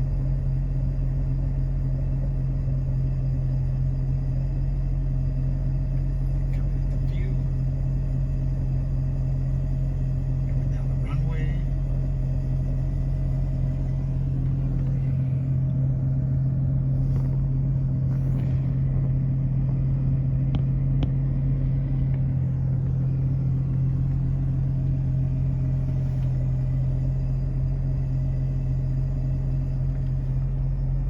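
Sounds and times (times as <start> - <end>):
car engine idling from inside: 0.0 - 31.0.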